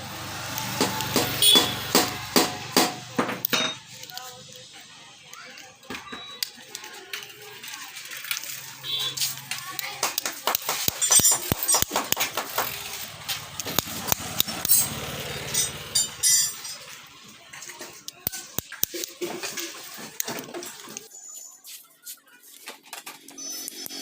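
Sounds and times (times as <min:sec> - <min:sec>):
metal tools clinking: 0:10.8 - 0:18.5.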